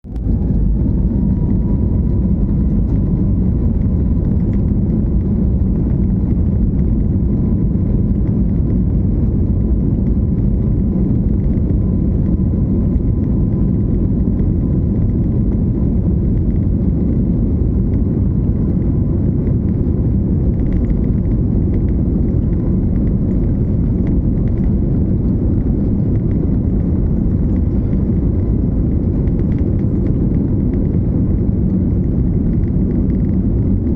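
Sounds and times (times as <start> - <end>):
jet engines roaring with whine: 0.0 - 33.9.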